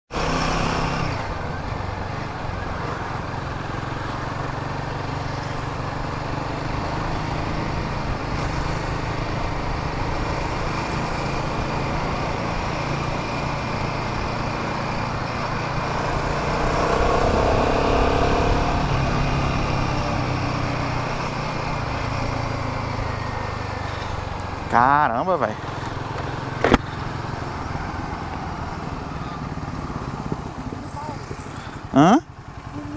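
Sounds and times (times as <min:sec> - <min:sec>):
engine hum: 0:00.1 - 0:32.9
road and wind noise: 0:00.1 - 0:32.9
passing vehicle tonal swell: 0:13.5 - 0:24.8.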